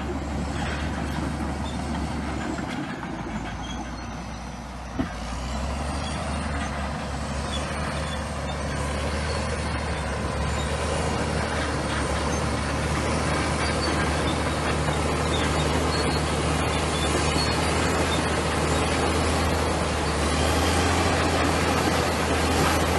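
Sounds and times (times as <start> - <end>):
bulldozer diesel engine running: 0.0 - 22.9
machine working noise: 6.0 - 22.9.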